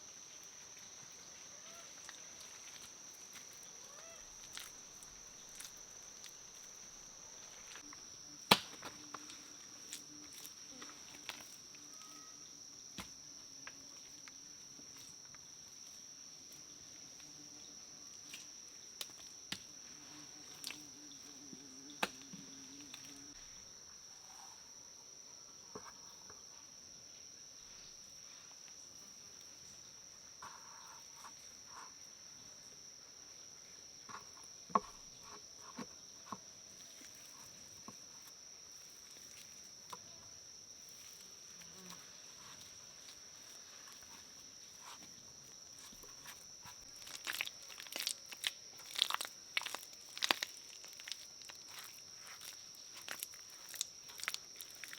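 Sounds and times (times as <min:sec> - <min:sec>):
insects trilling: 0:00.0 - 0:54.9
crunching and rustling: 0:01.7 - 0:07.9, 0:40.7 - 0:54.9.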